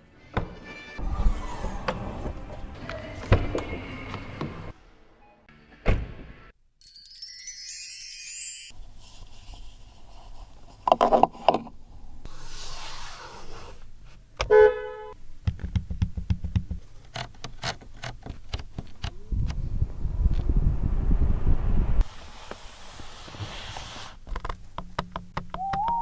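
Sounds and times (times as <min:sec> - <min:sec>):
car horn toot: 0:14.5 - 0:15.2
car engine rumble: 0:18.2 - 0:22.0.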